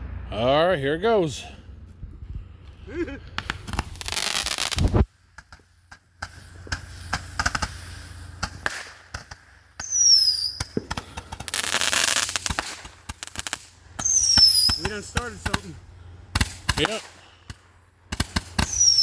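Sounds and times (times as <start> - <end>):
fireworks hissing burst: 3.4 - 19.0
sharp pops and crackle: 3.4 - 19.0
high falling whistle: 9.8 - 10.8, 14.0 - 14.9, 18.7 - 19.0.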